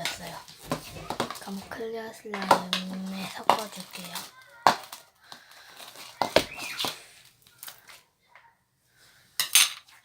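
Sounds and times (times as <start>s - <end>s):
slime clicking and crackling: 0.0s - 7.8s.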